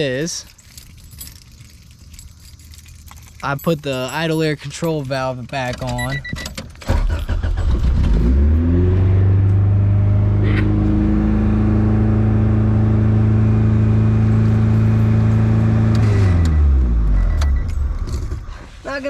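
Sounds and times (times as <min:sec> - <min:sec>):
car engine revving: 0:07.0 - 0:18.4.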